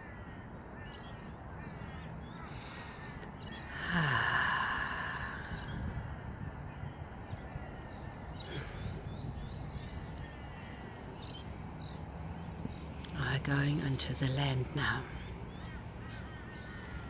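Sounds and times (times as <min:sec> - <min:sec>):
crow cawing: 0:00.0 - 0:01.0, 0:15.5 - 0:17.0.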